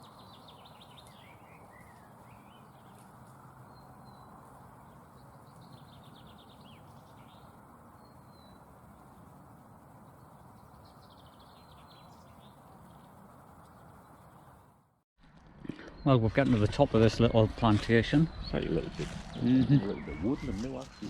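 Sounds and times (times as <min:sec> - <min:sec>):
small songbird singing faintly: 0:00.0 - 0:14.7.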